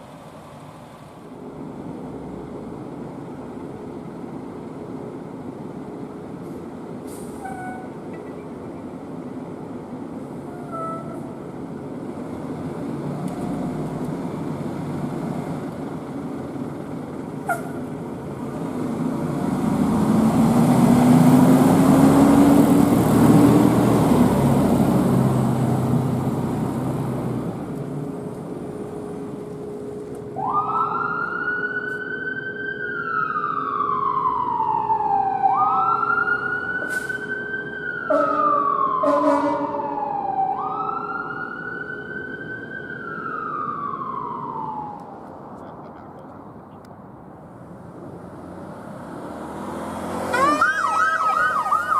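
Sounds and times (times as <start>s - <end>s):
passing traffic: 0.0s - 51.9s
emergency siren wailing: 10.4s - 11.4s, 30.3s - 45.7s, 49.9s - 51.9s.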